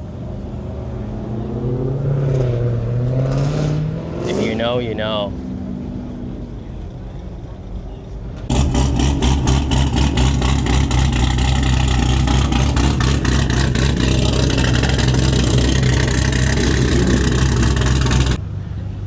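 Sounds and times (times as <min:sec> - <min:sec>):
car engine idling: 0:05.8 - 0:18.4.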